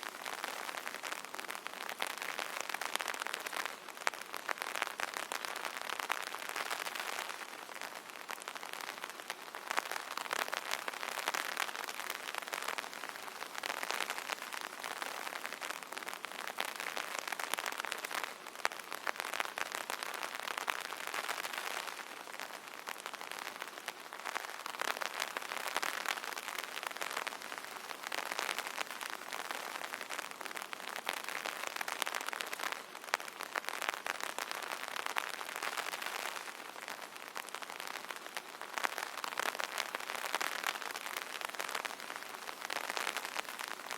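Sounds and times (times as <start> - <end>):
rain on an umbrella: 0.0 - 43.9.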